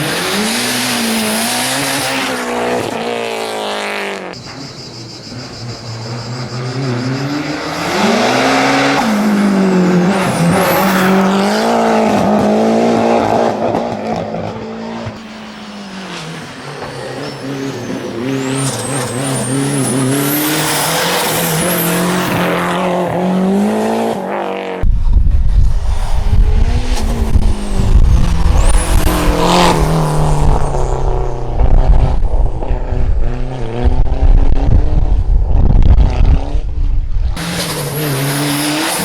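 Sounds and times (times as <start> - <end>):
racing car engine revving: 0.0 - 24.9, 25.7 - 39.0
tyre squeals: 14.1 - 23.4.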